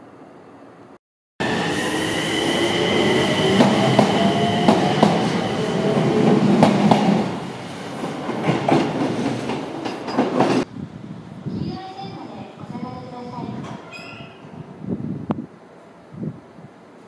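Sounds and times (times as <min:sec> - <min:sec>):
electric train whine: 0:01.4 - 0:08.2.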